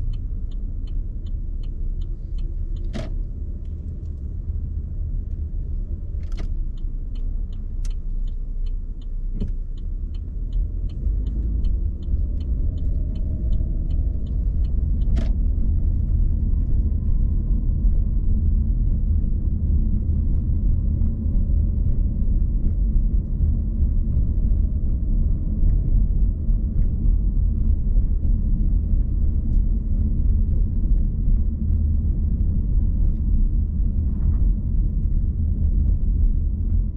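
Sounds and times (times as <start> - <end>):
regular ticking: 0.0 - 16.4
car road and engine rumble: 0.0 - 36.9.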